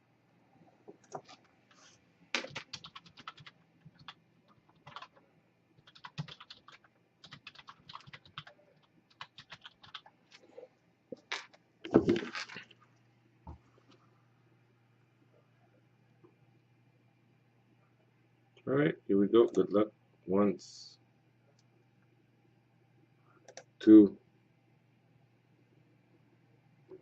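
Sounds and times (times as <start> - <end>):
typing on computer keyboard: 2.4 - 5.2, 5.8 - 10.1, 23.4 - 23.7.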